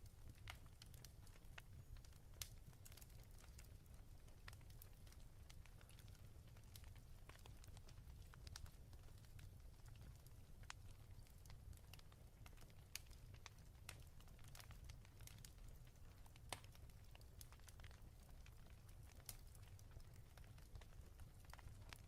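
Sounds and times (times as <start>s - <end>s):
burning wood popping and snapping: 0.0s - 22.0s.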